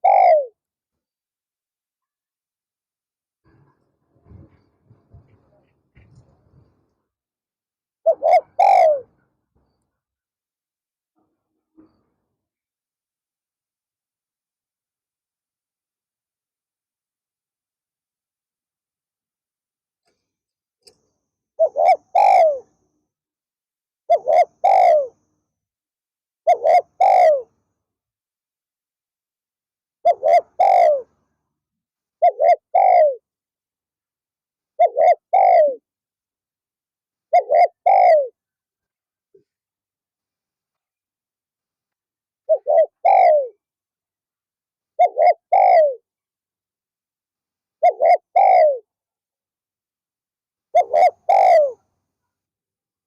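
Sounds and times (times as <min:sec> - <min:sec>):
dove cooing: 0:00.0 - 0:00.6, 0:08.0 - 0:09.1, 0:21.6 - 0:22.8, 0:24.1 - 0:25.2, 0:26.4 - 0:27.5, 0:30.0 - 0:31.1, 0:32.2 - 0:33.2, 0:34.8 - 0:35.8, 0:37.3 - 0:38.4, 0:42.5 - 0:43.6, 0:45.0 - 0:46.1, 0:47.8 - 0:48.9, 0:50.7 - 0:51.8.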